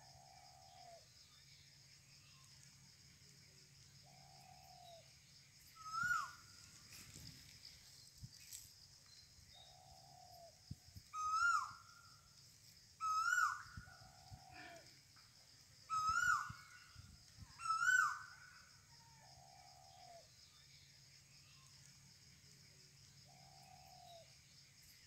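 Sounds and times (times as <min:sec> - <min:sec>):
bird calling: 0:05.7 - 0:06.6, 0:11.1 - 0:12.0, 0:13.0 - 0:14.9, 0:15.9 - 0:18.5.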